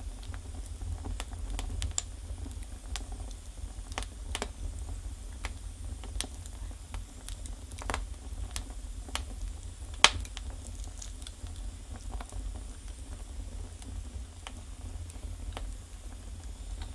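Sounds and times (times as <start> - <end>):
low fire rumble: 0.0 - 16.9
wood fire crackling: 0.0 - 16.9.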